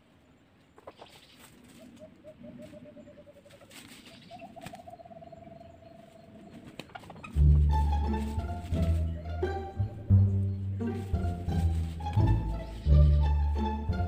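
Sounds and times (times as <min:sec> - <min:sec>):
rustles in dry leaves: 0:00.8 - 0:05.0, 0:05.9 - 0:09.8, 0:10.8 - 0:13.7
low pulsed bird trills: 0:01.1 - 0:07.4, 0:09.0 - 0:11.3
music with heavy bass: 0:07.4 - 0:14.0.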